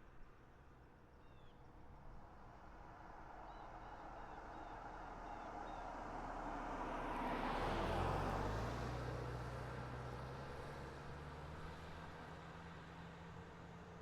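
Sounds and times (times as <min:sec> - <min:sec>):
engine passing by: 0:06.7 - 0:11.6.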